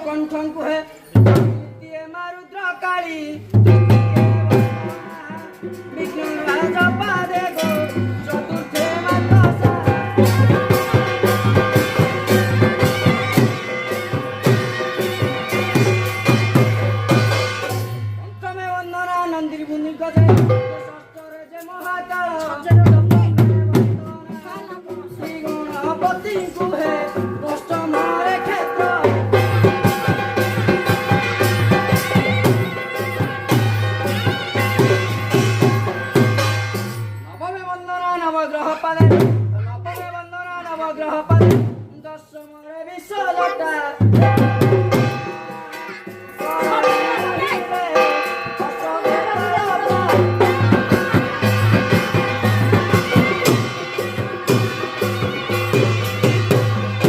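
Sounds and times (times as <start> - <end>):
held melody line: 0.0 - 41.5, 43.0 - 57.0
hand drums beating: 1.2 - 1.8, 3.5 - 18.3, 20.1 - 21.2, 21.8 - 37.2, 39.0 - 40.2, 41.2 - 41.9, 43.9 - 57.0
sustained melody line: 43.2 - 57.0
quick drum strokes: 44.0 - 57.0.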